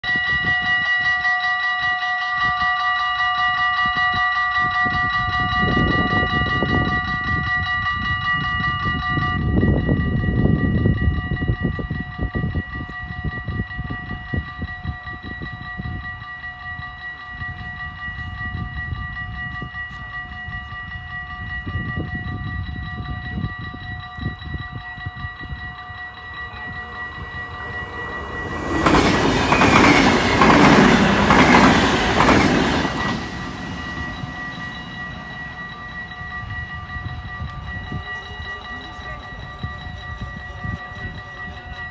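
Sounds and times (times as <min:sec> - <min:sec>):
level-crossing bells ringing: 0:00.1 - 0:41.9
train passing: 0:11.9 - 0:41.8.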